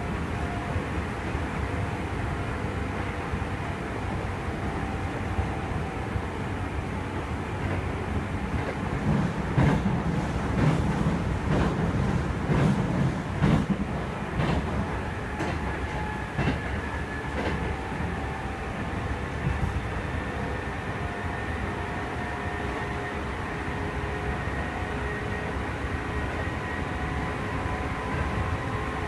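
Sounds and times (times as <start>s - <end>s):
train rumble: 0.0s - 29.0s
rail-joint clacks: 8.5s - 17.9s.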